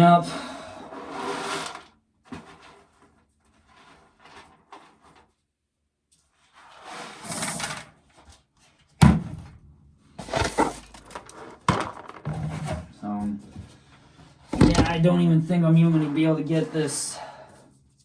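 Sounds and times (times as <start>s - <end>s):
scraping: 14.5s - 17.4s.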